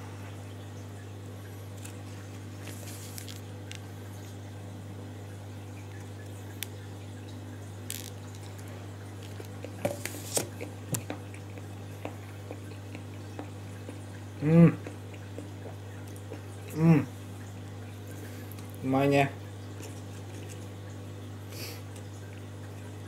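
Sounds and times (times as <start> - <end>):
steady low hum: 0.0 - 23.0
man chewing wetly: 7.8 - 18.8, 19.7 - 23.0
man humming mm: 14.4 - 14.9, 16.7 - 17.1.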